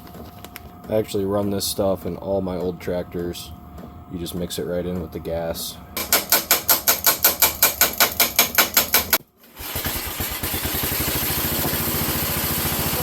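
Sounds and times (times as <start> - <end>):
garden tractor engine running: 4.1 - 13.0.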